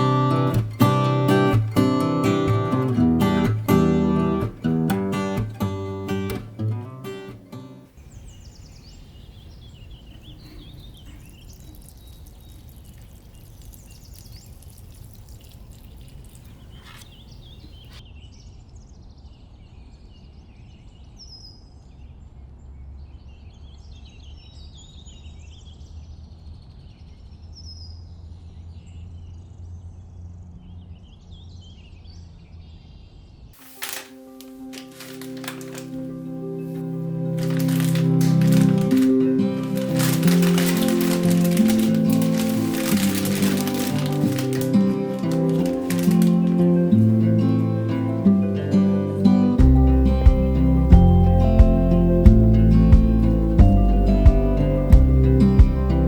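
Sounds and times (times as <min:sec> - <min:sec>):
small birds chirping: 0:07.9 - 0:33.8.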